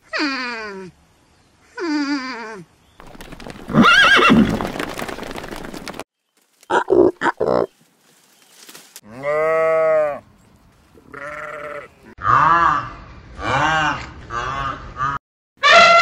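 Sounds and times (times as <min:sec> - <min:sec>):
horse whinnying: 0:03.6 - 0:04.8
sheep bleating: 0:09.1 - 0:10.2, 0:11.1 - 0:12.4.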